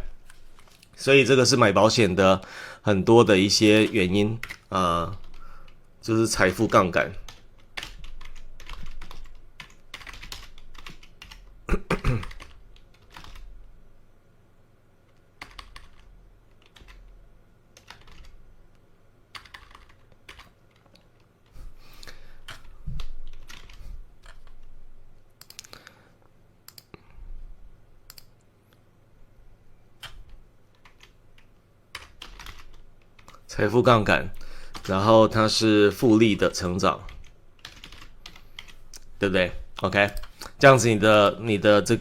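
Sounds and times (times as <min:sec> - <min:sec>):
computer keyboard typing: 0:03.8 - 0:13.6, 0:15.1 - 0:18.4, 0:19.3 - 0:24.8, 0:25.4 - 0:25.8, 0:26.7 - 0:27.0, 0:28.1 - 0:28.4, 0:30.0 - 0:33.4, 0:34.3 - 0:35.0, 0:37.1 - 0:39.1, 0:39.8 - 0:40.5.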